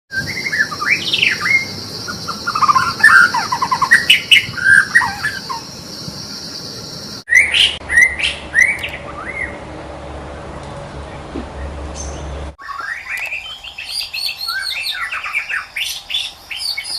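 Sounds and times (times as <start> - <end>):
bird singing whistled phrases: 0.2 - 5.6, 7.3 - 9.6, 12.0 - 16.9.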